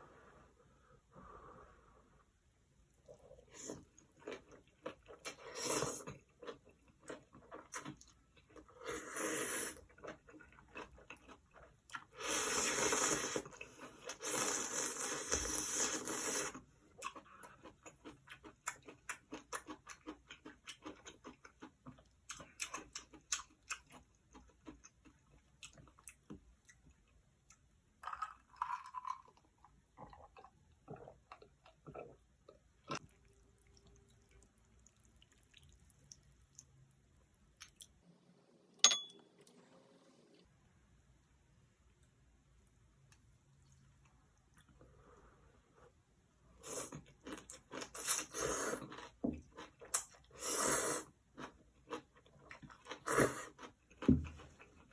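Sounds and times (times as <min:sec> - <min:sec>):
wet chewing: 0:30.0 - 0:37.9.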